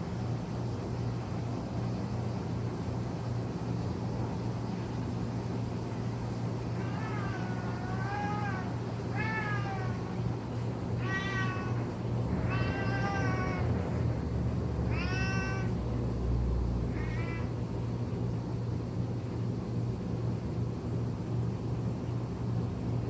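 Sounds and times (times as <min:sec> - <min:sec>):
cat meowing: 0:06.8 - 0:10.2, 0:10.9 - 0:13.7, 0:14.9 - 0:15.7, 0:16.9 - 0:17.5.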